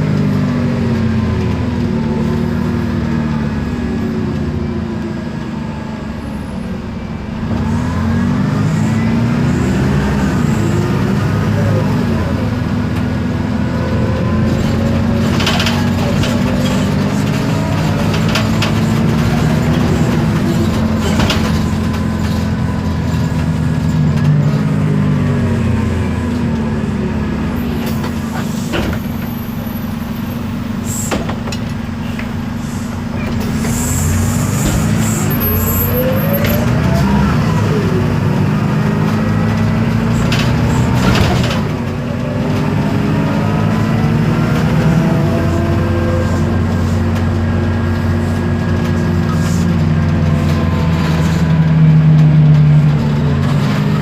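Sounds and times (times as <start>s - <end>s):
bus diesel engine running: 0.0s - 54.0s
knocks and rattles: 14.5s - 24.3s.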